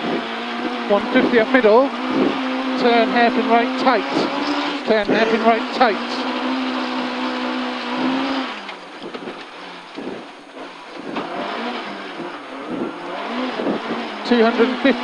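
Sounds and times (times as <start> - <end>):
gravel and chassis noise: 0.0 - 15.0
rally car engine revving: 0.0 - 15.0.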